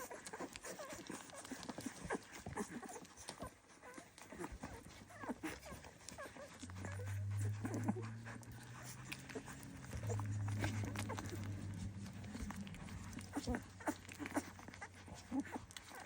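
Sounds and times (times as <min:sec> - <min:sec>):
puppies squeaking and whimpering: 0:00.0 - 0:16.0
small clicks and rustles: 0:00.0 - 0:16.0
steady low hum: 0:06.5 - 0:16.0.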